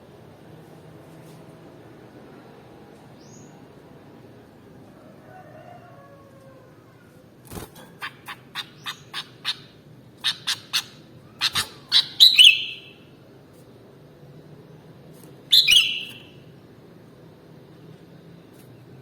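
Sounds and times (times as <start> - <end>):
bird whistled phrase: 11.9 - 13.0, 15.5 - 16.4.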